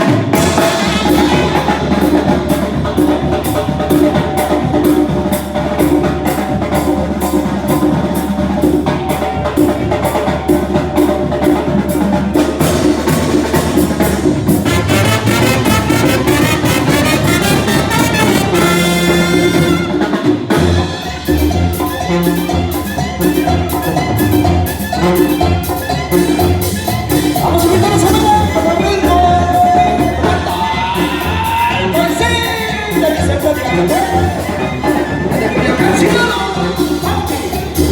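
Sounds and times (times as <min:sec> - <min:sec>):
brass band with drums: 0:00.0 - 0:37.9
quick run of high notes: 0:14.7 - 0:30.4.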